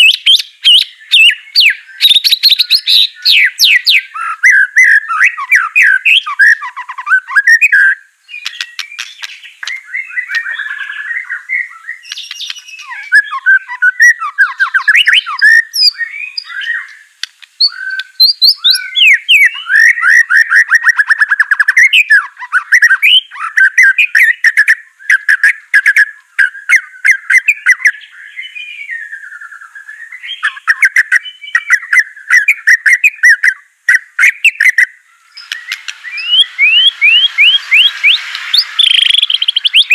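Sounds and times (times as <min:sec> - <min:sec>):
songbird whistling and trilling: 0:00.0 - 0:39.9
bird sharp clicking notes: 0:08.4 - 0:10.5, 0:12.0 - 0:13.0, 0:16.8 - 0:18.9, 0:35.4 - 0:39.9.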